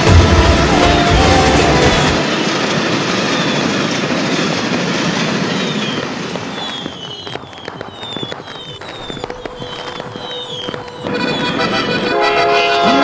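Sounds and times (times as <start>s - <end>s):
fireworks crackling hiss: 0.0s - 12.8s
fireworks sharp cracks: 0.0s - 13.0s
high falling whistles: 2.4s - 3.8s, 5.4s - 12.2s.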